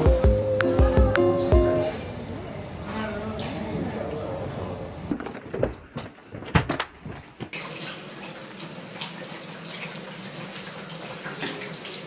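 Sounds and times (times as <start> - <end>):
water running with splashing: 7.6 - 12.0.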